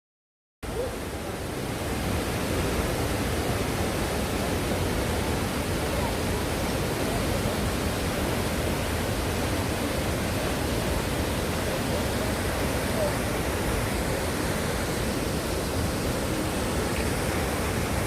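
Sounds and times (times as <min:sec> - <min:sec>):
waterfall rushing into pool: 0:00.7 - 0:18.0.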